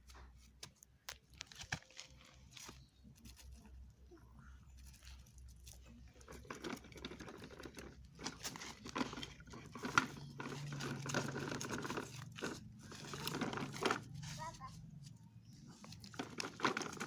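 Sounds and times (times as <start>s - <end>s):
toy truck rattling: 4.8s - 14.8s, 15.7s - 17.0s.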